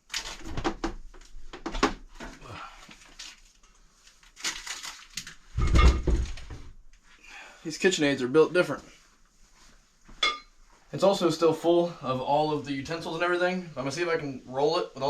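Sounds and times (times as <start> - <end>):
household items clattering: 4.4 - 6.6.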